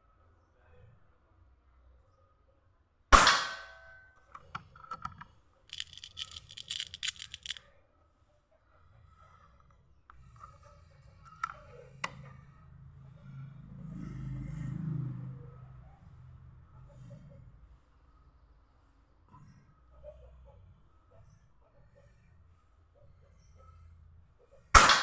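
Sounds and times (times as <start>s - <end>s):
air rifle shot: 3.2s - 3.8s, 24.8s - 25.0s
clicking and rattling of rifle action: 4.4s - 7.6s
sharp clicks: 5.7s - 7.6s.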